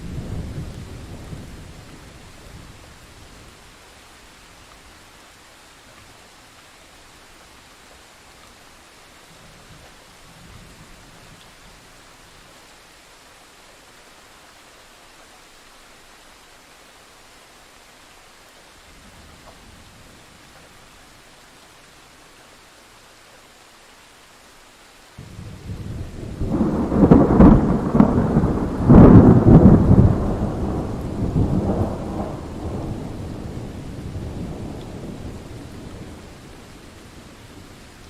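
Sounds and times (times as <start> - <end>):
rain hissing: 0.0 - 38.0
thunderclap cracking and rolling: 25.2 - 36.6.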